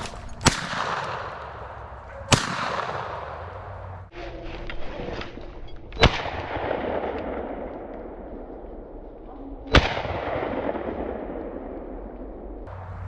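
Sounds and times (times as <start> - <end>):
shotgun shots echoing: 0.0 - 4.0, 6.0 - 8.3.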